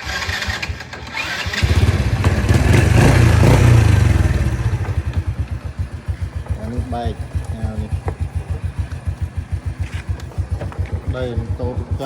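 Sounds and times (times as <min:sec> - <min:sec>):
motorcycle engine revving and idling: 0:00.0 - 0:12.0.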